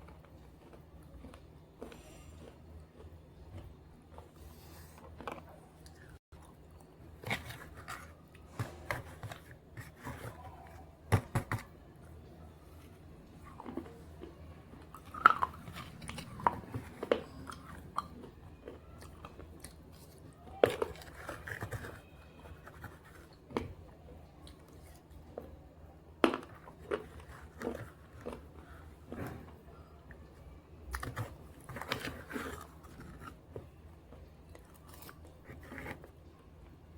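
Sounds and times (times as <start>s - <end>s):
biting and chewing brittle pieces: 0.0s - 4.4s, 13.3s - 23.7s, 26.2s - 29.5s, 30.8s - 36.1s.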